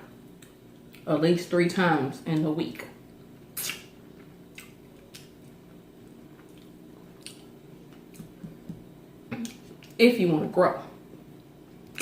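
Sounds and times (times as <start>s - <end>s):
faint steady hum: 0.0s - 12.0s
person chewing food: 3.6s - 8.8s.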